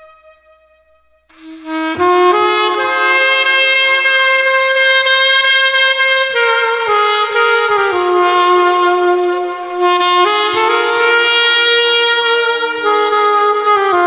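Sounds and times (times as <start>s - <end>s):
alto saxophone ballad melody: 0.0s - 14.0s.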